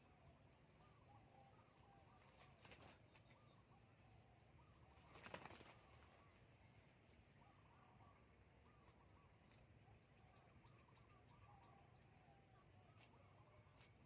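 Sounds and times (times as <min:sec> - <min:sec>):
faint bird chirps: 0:00.0 - 0:14.0
wing flutter rustle: 0:02.1 - 0:03.4, 0:04.9 - 0:06.4.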